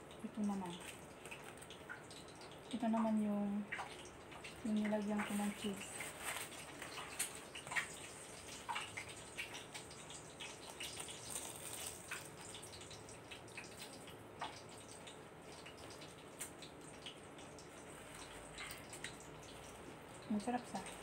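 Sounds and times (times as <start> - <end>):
person chewing food: 10.4 - 12.9.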